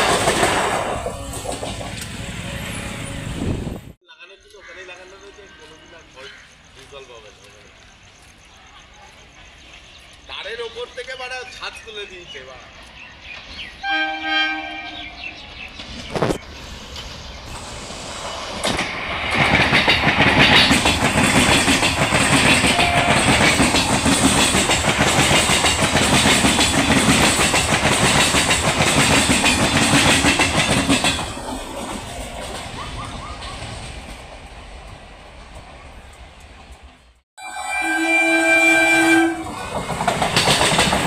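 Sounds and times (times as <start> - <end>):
train passing at speed: 0.0 - 4.0, 12.5 - 41.0.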